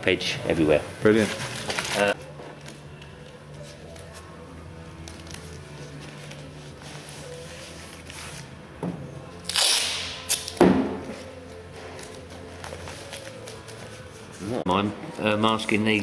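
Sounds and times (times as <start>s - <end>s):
masking tape ripping: 9.4s - 10.6s.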